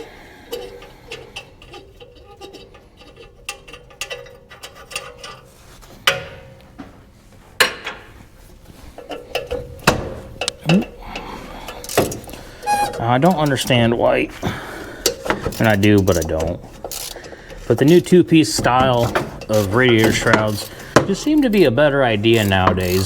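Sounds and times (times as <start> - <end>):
ratchet clicking: 15.0 - 18.1, 18.9 - 20.8, 22.3 - 23.0.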